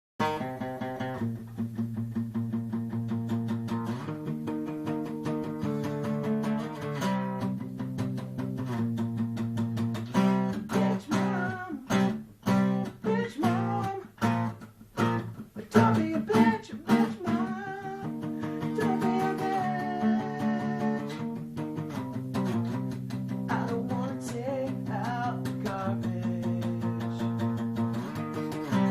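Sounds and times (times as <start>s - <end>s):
acoustic guitar strumming: 0.2s - 28.9s
person singing: 10.7s - 21.4s, 23.5s - 27.6s.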